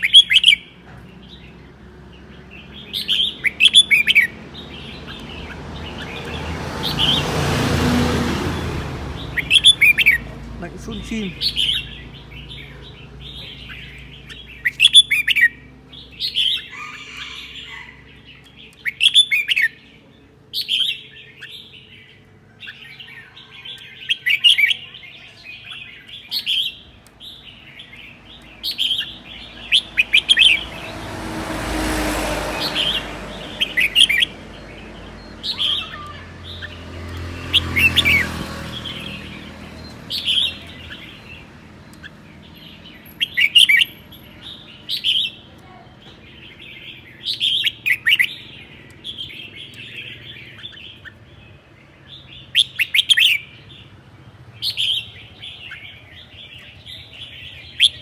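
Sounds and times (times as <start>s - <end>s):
bulbul singing short phrases: 9.5s - 11.9s.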